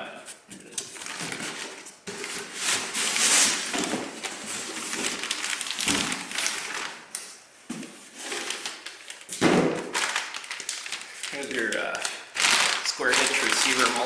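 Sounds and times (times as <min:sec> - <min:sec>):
cardboard rustling and scraping: 0:00.5 - 0:07.0, 0:07.7 - 0:09.6.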